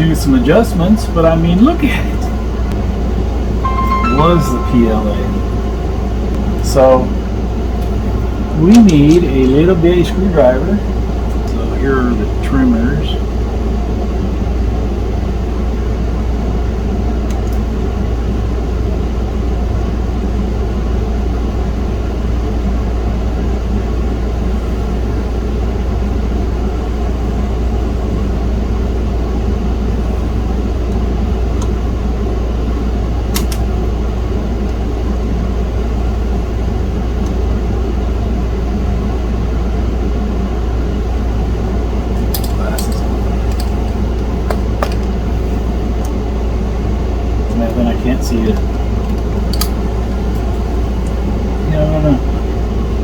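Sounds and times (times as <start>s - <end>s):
machine hum and drone: 0.0s - 13.8s.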